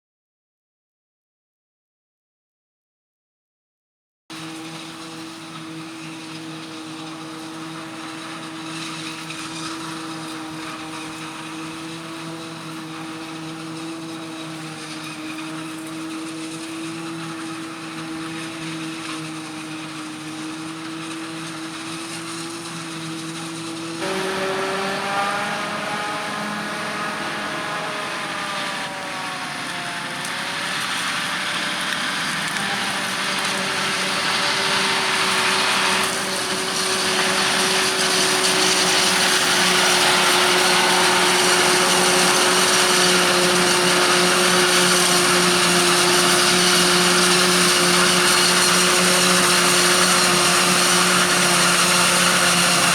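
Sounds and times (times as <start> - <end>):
harvest machinery engine whine: 4.3 - 52.9
louder machine: 4.3 - 52.9.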